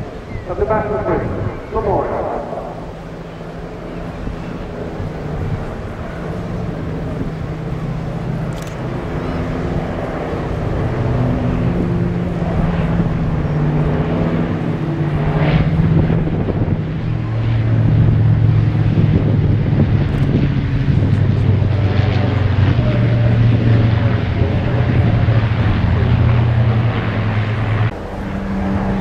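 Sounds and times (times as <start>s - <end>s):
propeller warplanes droning overhead: 0.0s - 29.0s.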